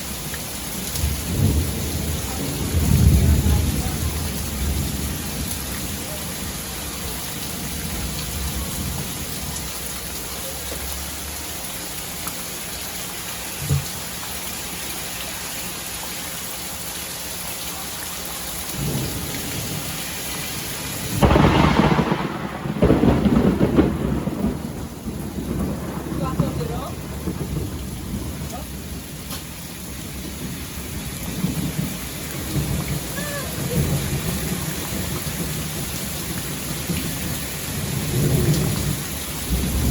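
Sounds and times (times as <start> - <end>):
steady rain falling: 0.0 - 39.9
thunder crack and rumble: 0.9 - 9.8, 18.7 - 39.9.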